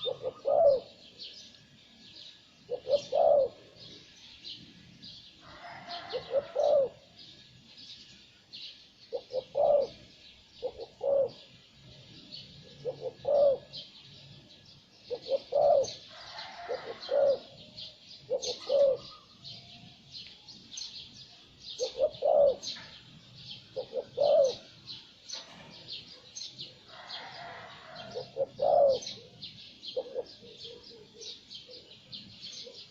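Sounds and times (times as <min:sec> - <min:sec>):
dove cooing: 0:00.0 - 0:01.4, 0:02.6 - 0:04.0, 0:05.4 - 0:07.1, 0:09.1 - 0:14.0, 0:15.0 - 0:19.6, 0:21.7 - 0:23.0, 0:23.6 - 0:25.9, 0:26.6 - 0:32.9
small birds twittering: 0:00.0 - 0:32.9.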